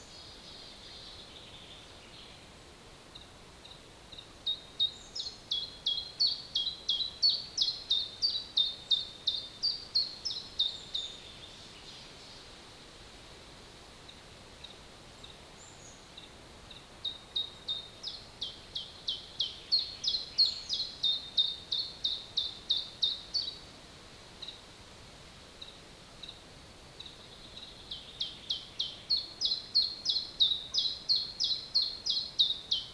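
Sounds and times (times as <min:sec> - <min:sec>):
songbird singing: 0:00.0 - 0:12.6, 0:14.0 - 0:23.7, 0:24.3 - 0:24.7, 0:25.5 - 0:32.9
faint forest hiss: 0:00.0 - 0:32.9.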